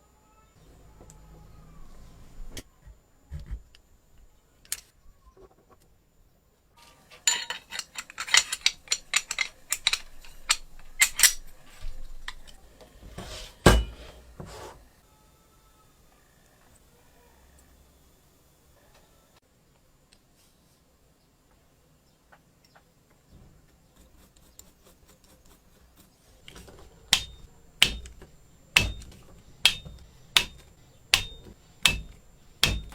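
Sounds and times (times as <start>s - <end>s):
small metal parts clinking: 7.0s - 12.6s
sharp knock: 31.2s - 32.9s.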